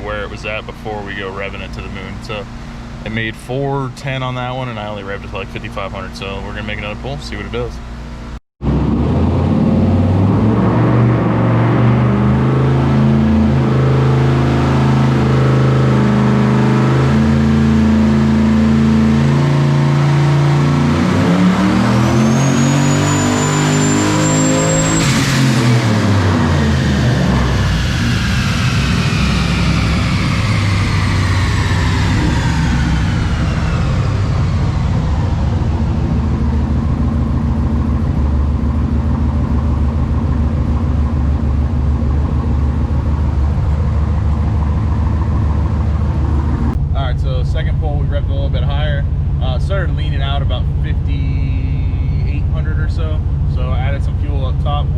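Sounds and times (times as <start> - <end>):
engine revving on dyno: 4.1 - 54.9
high turbo whistle: 7.9 - 47.2.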